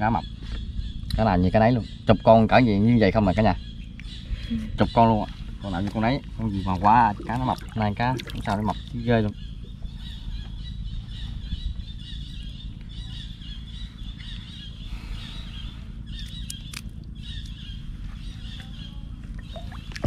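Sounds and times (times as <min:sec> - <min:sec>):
birds high chirping: 0:00.0 - 0:20.0
steady low rumble: 0:00.0 - 0:20.0
sharp clicks: 0:16.2 - 0:17.5.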